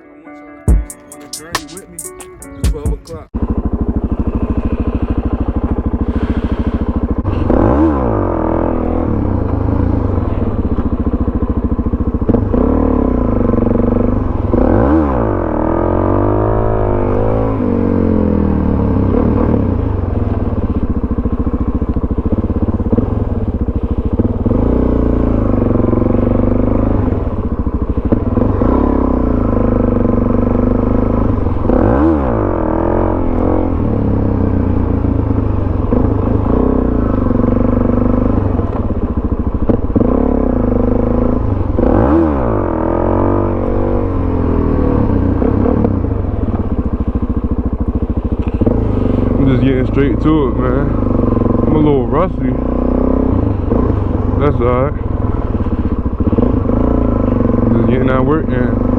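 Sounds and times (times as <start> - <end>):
motorcycle engine revving: 1.2 - 58.9.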